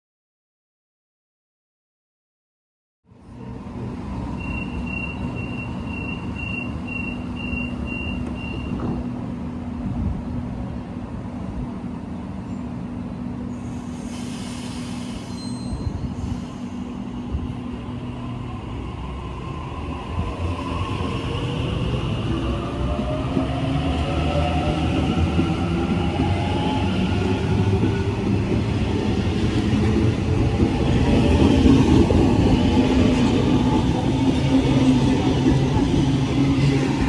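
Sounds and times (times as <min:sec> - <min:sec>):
air hiss: 0:13.6 - 0:17.0.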